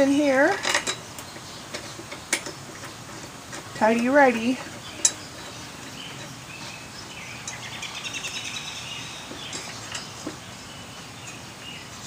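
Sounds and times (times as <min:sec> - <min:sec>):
songbird trilling: 0:04.4 - 0:12.0.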